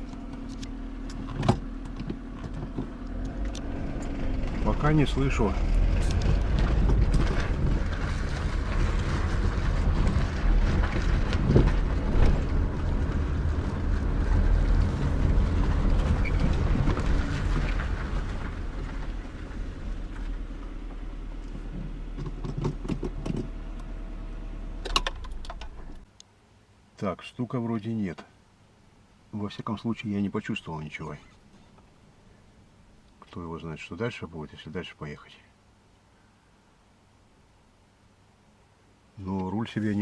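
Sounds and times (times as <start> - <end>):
car road and engine rumble: 0.0 - 26.8.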